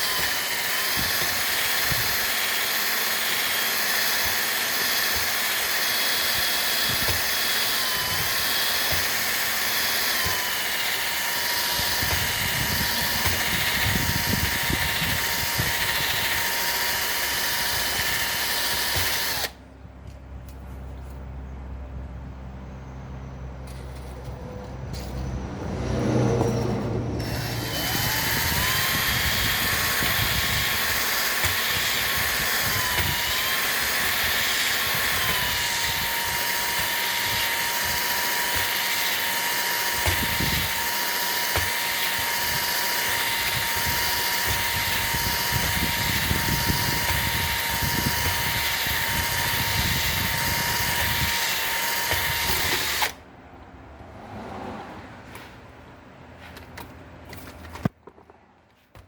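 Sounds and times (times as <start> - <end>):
power tool whining: 0.0 - 19.6, 26.2 - 53.2.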